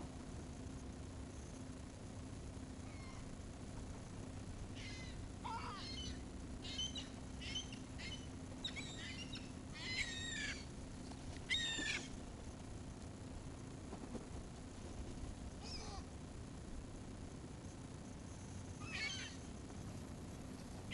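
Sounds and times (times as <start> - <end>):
low hum: 0.0 - 20.9
gulls calling: 4.7 - 10.8, 11.4 - 12.2, 15.6 - 16.1, 18.8 - 19.6.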